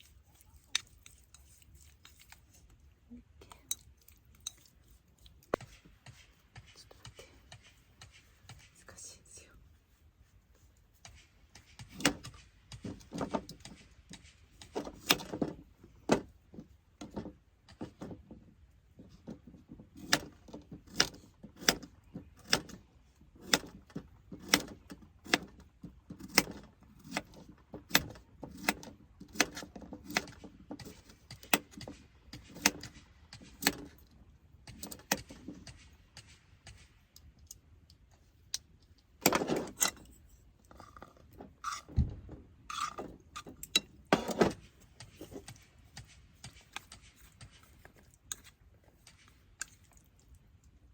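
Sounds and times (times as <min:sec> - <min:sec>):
scraping rustle: 0:00.0 - 0:03.2.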